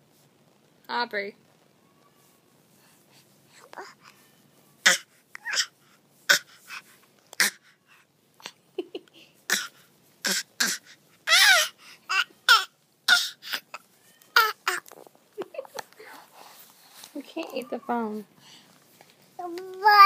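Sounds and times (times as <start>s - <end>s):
baby squealing and babbling: 3.7s - 4.2s, 4.8s - 6.8s, 7.4s - 7.7s, 9.5s - 14.9s, 19.4s - 20.0s.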